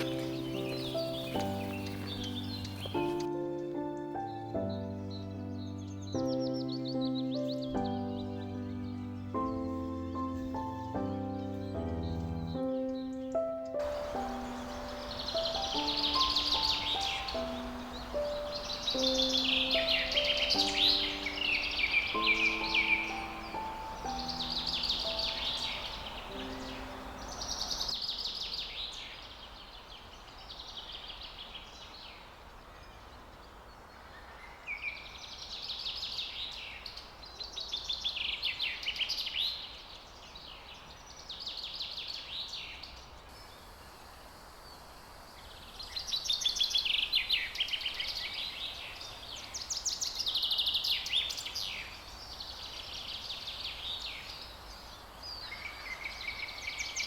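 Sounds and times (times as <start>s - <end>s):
songbird trilling: 0.0s - 3.3s, 10.1s - 28.0s
soft background music: 0.0s - 27.9s.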